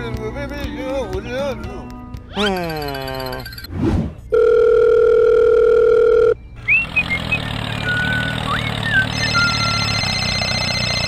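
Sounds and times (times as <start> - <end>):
low engine-like hum: 6.1 - 11.0
short whistled chirps: 6.6 - 9.8
loud steady beep: 8.9 - 11.0.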